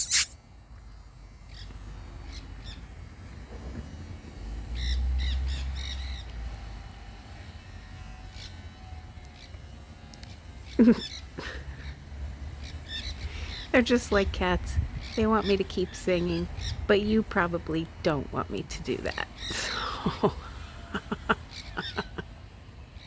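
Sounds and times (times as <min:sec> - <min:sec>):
parakeets squawking and chattering: 0:21.0 - 0:22.2.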